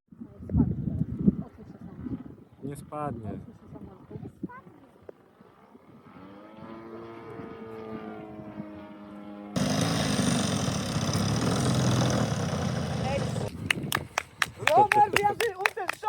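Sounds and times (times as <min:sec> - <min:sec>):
model airplane engine buzzing: 0:05.4 - 0:13.6
loud rough noise: 0:09.6 - 0:13.7.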